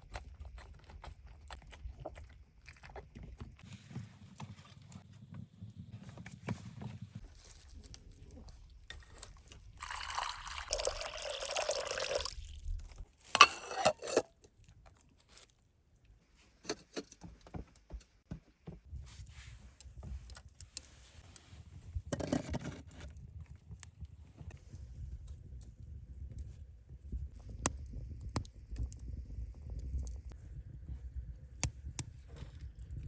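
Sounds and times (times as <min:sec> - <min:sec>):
liquid pouring: 0:09.8 - 0:13.0.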